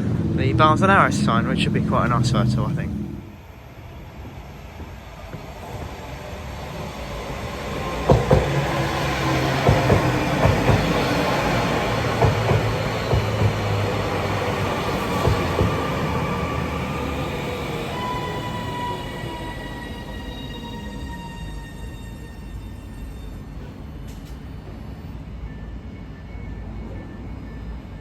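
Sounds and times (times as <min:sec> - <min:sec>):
train wheels clicking over rail joints: 0:07.2 - 0:16.2.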